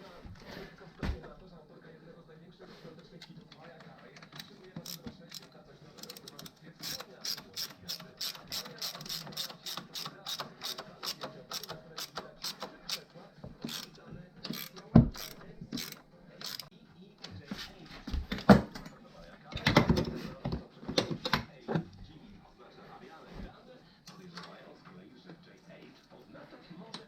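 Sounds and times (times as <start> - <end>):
ratchet wrench clicking: 4.8 - 13.0, 13.7 - 13.9, 14.5 - 16.7.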